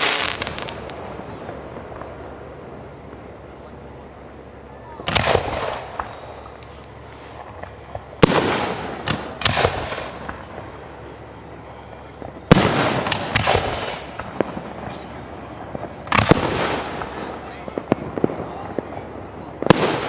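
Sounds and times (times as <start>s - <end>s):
fireworks shells bursting: 0.0s - 2.2s, 12.0s - 19.0s.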